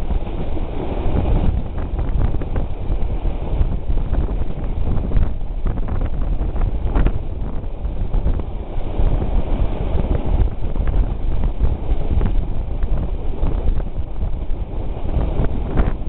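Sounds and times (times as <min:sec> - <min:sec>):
train rumbling along the track: 0:00.0 - 0:16.0
wind buffeting the microphone: 0:00.0 - 0:16.0.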